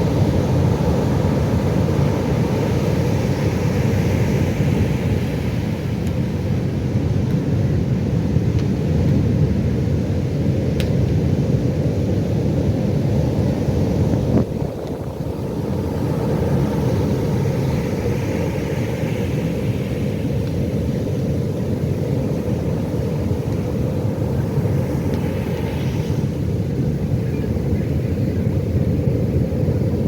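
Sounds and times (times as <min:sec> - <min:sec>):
waves breaking: 0:13.4 - 0:27.4.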